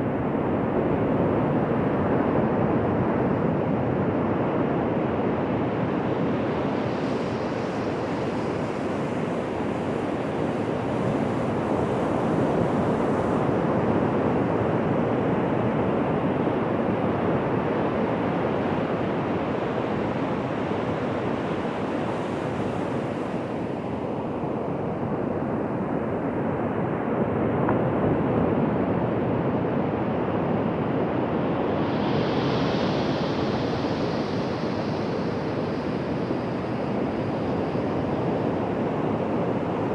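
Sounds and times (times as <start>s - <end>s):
waves breaking on a beach: 30.1s - 39.9s.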